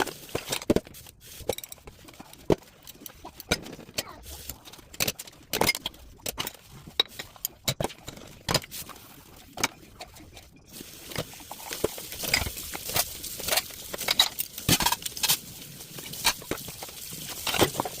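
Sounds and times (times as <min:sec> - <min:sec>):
household items clattering: 0:00.0 - 0:18.0
steady hiss: 0:10.7 - 0:18.0.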